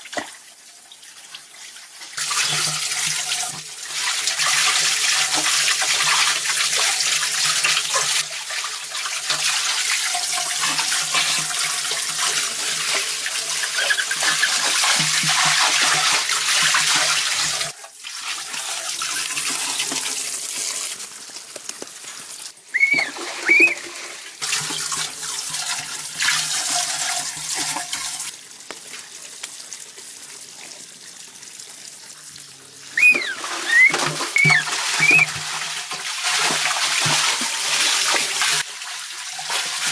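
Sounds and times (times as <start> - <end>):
short high chirps: 22.8 - 23.8, 33.0 - 35.3
water rushing and splashing: 22.8 - 24.2, 33.0 - 35.4.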